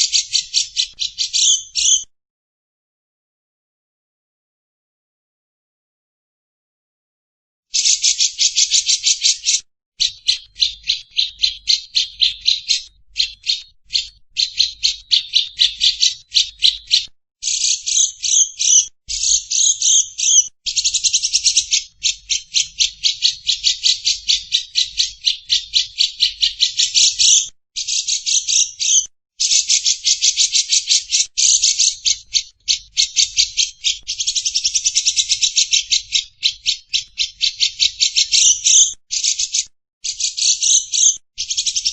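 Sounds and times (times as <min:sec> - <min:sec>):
songbird rattling trill: 0:00.0 - 0:02.0, 0:07.7 - 0:41.9.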